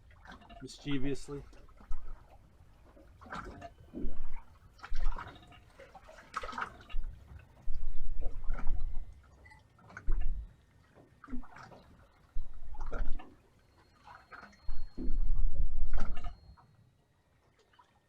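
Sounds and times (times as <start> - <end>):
water slapping against boat hull: 0.0 - 13.4.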